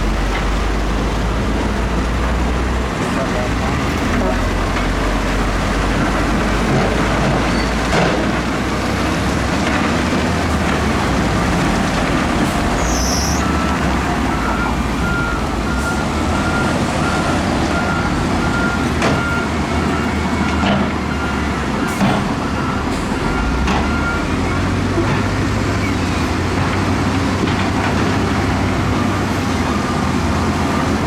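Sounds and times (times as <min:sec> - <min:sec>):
heavy earthmoving machinery running: 0:00.0 - 0:31.0
reversing alarm beeping: 0:12.7 - 0:24.8.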